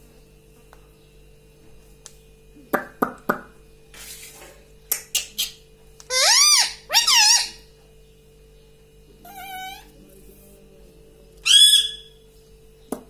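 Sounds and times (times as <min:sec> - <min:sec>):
parrot calling: 0:05.2 - 0:07.7, 0:09.2 - 0:09.9, 0:11.4 - 0:12.2.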